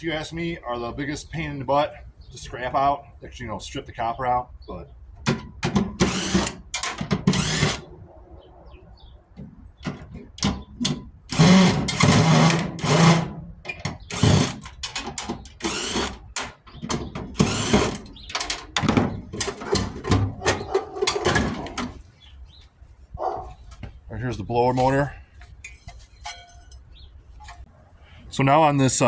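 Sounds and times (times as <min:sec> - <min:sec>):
power drill bursts: 0:06.0 - 0:07.8, 0:11.3 - 0:13.4, 0:14.0 - 0:16.6, 0:17.3 - 0:18.1.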